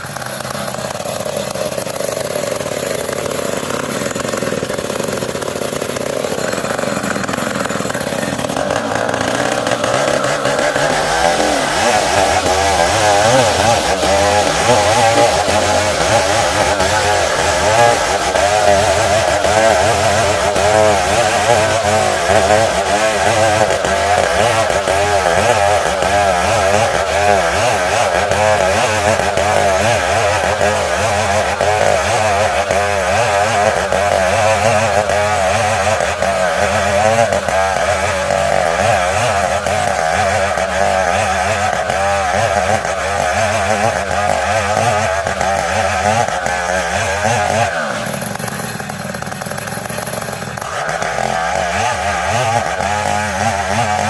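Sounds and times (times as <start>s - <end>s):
chainsaw sawing wood: 0.0s - 54.0s.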